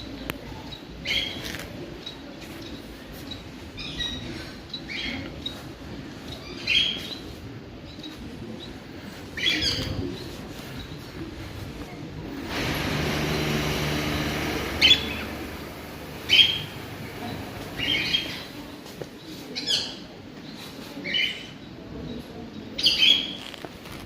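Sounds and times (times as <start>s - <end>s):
steady noise with low hum: 10.2s - 19.1s.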